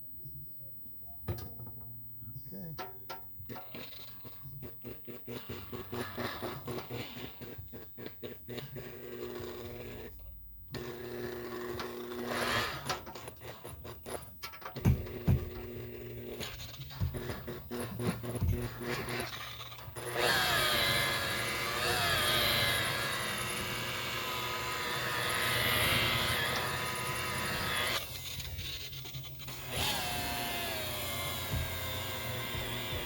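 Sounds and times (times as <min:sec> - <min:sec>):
electric polishing buffer whine: 0:14.4 - 0:33.0.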